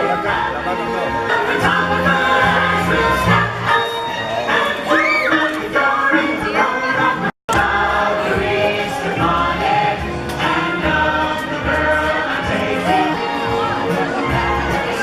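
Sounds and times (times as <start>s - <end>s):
group singing over a beat: 0.0s - 3.8s, 4.5s - 15.0s.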